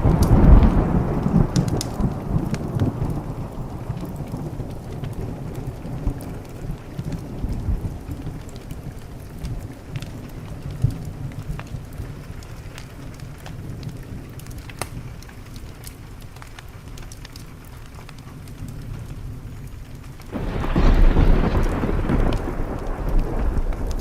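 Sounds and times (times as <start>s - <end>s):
loud thunder crack: 0.0s - 4.6s, 20.3s - 24.0s
thunder rumbling: 0.0s - 15.2s, 18.4s - 24.0s
steady rain: 0.0s - 24.0s
wood fire crackling: 0.0s - 24.0s.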